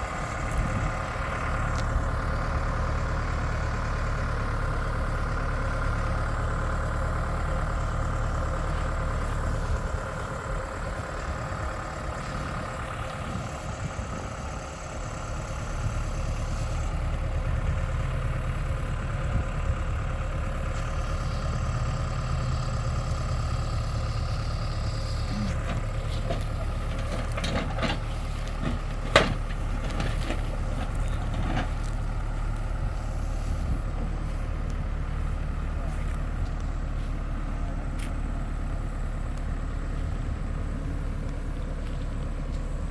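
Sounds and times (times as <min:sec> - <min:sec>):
engine running steadily: 0:00.0 - 0:42.9.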